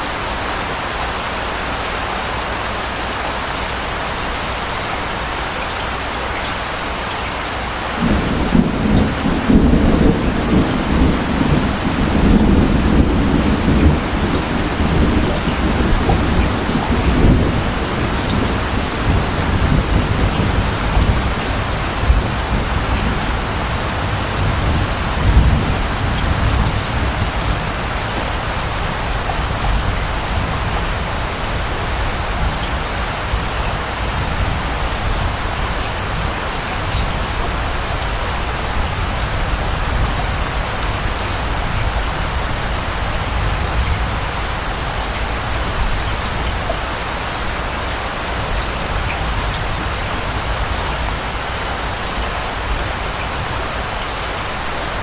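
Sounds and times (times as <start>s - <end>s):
rain falling: 0.0s - 55.0s
distant thunder rumbling: 8.0s - 47.5s.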